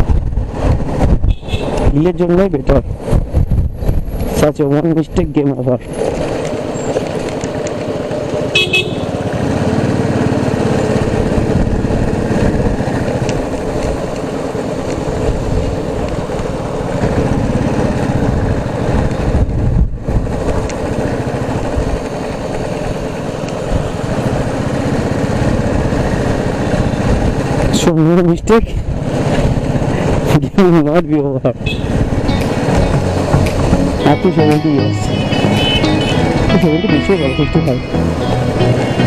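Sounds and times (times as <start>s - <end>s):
motorcycle engine and road noise: 0.0s - 39.0s
vehicle horn toot: 1.3s - 1.8s, 8.5s - 9.2s, 31.6s - 32.0s, 34.8s - 37.6s.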